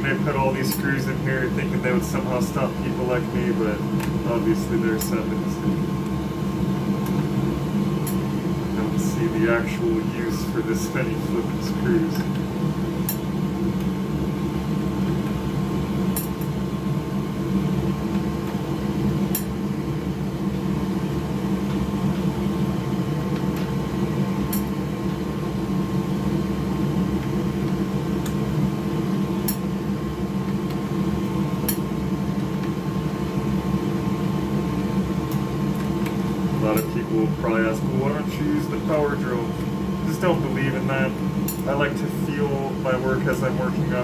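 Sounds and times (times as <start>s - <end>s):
electric machine hum: 0.0s - 44.0s.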